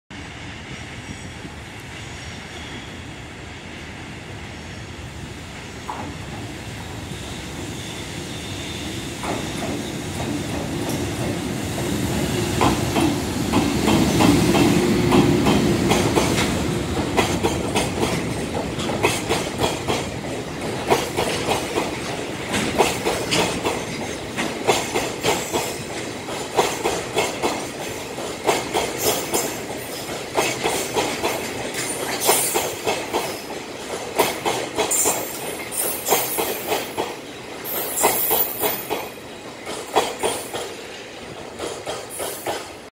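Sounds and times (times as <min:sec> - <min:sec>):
train wheel squeals: 0:00.5 - 0:03.6, 0:06.7 - 0:11.1, 0:34.8 - 0:40.9, 0:41.9 - 0:42.8
train wheels clickety-clack: 0:05.8 - 0:42.9.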